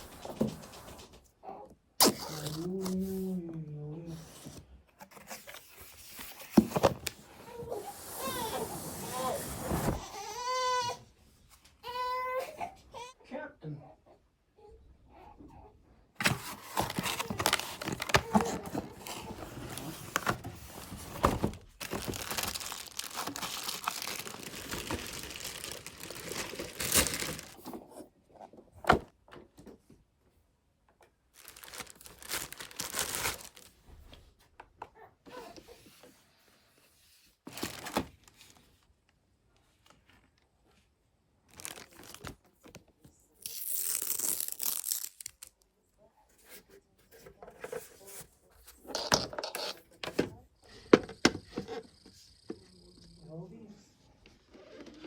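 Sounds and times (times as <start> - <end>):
wrapping torn and crinkled: 21.5 - 27.6, 31.4 - 33.7, 41.5 - 42.4, 43.3 - 45.6.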